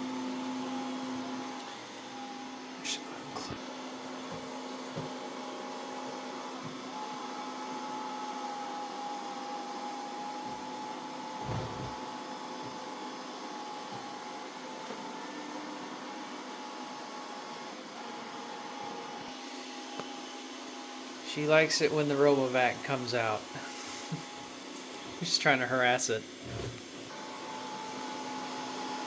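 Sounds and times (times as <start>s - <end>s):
robot vacuum running: 0.6s - 29.0s.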